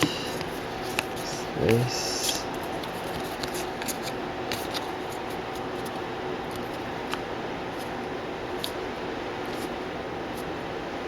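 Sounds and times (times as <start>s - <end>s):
background hiss: 0.0s - 2.6s
faint hum: 0.0s - 11.0s
cards clicking and scraping: 0.3s - 1.3s, 2.2s - 7.2s, 7.8s - 8.8s.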